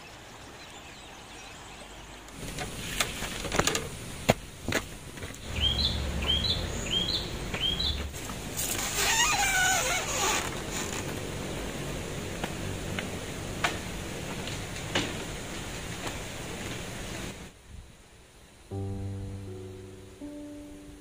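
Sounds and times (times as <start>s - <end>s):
bird chirping: 5.4s - 8.1s.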